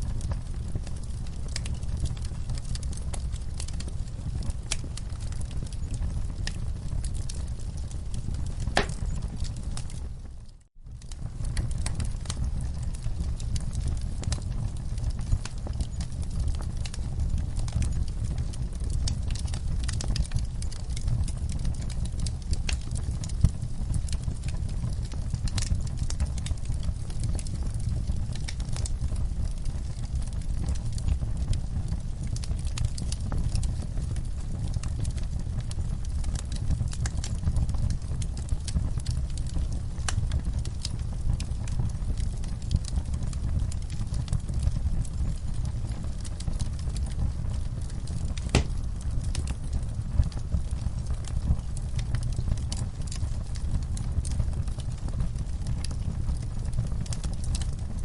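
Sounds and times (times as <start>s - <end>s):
fire crackling and popping: 0.0s - 58.0s
low rumble of flames: 0.0s - 58.0s
fire pop: 4.4s - 10.1s, 47.2s - 50.5s.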